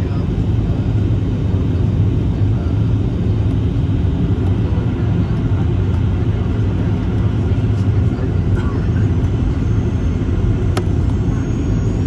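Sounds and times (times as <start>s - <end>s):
jet engine rumble: 0.0s - 12.0s.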